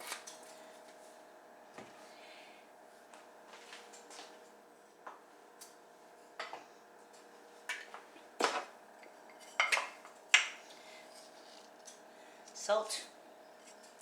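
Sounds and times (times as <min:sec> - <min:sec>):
kitchen utensils clinking: 0:09.4 - 0:10.5.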